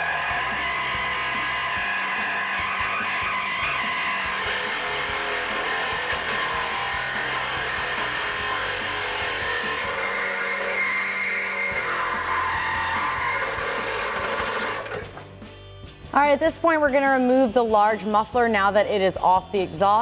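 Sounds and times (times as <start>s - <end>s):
reciprocating saw cutting metal: 0.0s - 15.3s.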